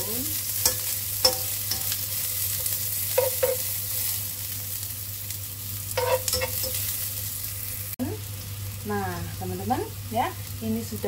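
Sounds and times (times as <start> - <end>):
food sizzling in hot oil: 0.0 - 11.0
spatula clinking against a pan: 0.6 - 2.0, 3.1 - 3.7, 6.0 - 6.8.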